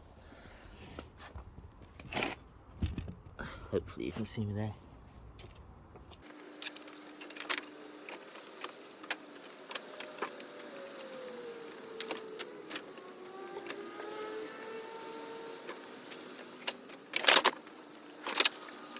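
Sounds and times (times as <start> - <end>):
faint hum falling in pitch: 5.8 - 18.9.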